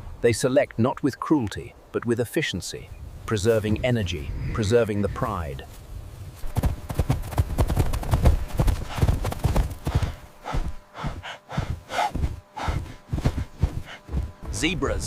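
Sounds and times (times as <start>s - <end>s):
hooves galloping: 6.4s - 15.0s
animal snorts and calls: 9.9s - 13.0s, 13.8s - 14.1s.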